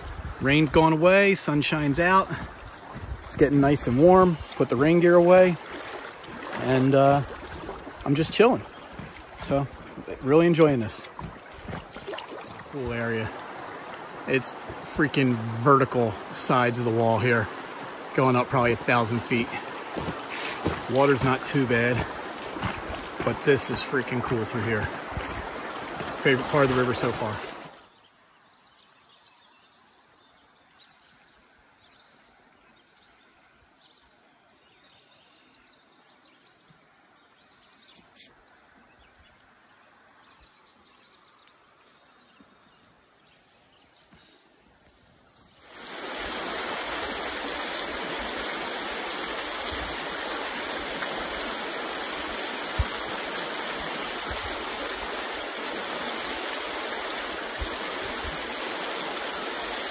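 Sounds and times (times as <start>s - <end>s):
creek water rushing: 0.0s - 28.0s, 45.6s - 59.9s.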